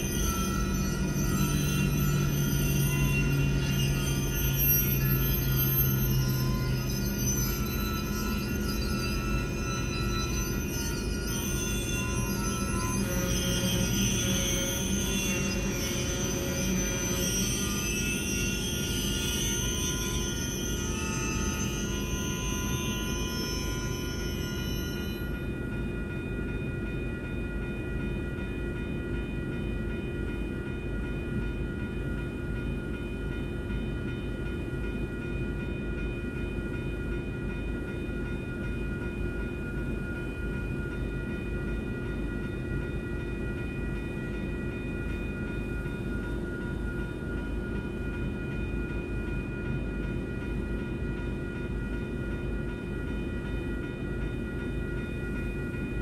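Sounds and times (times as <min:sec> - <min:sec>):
crossing bells ringing: 0:00.0 - 0:56.0.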